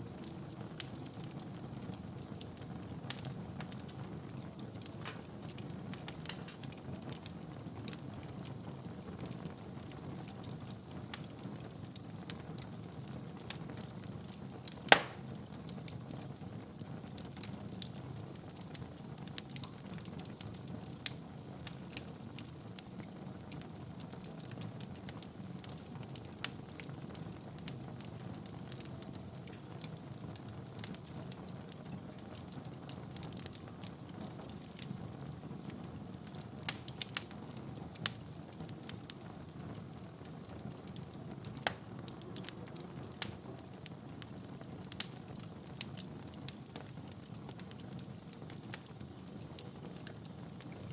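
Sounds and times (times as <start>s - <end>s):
fire crackling and popping: 0.0s - 50.9s
flames rushing: 14.6s - 15.4s.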